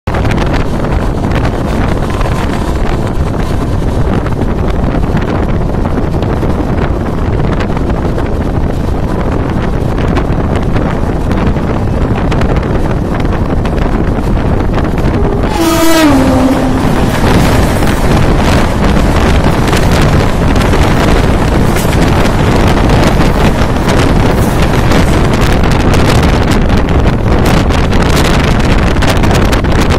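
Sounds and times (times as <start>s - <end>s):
wind rushing over microphone: 0.0s - 29.9s
train wheels rumbling on track: 0.1s - 29.9s
train horn: 14.9s - 19.0s.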